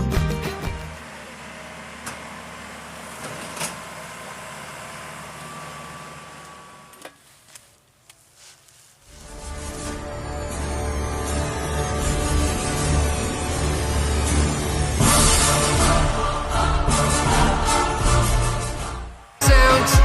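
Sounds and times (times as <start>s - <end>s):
diesel engine running: 0.0s - 7.6s, 9.1s - 20.0s.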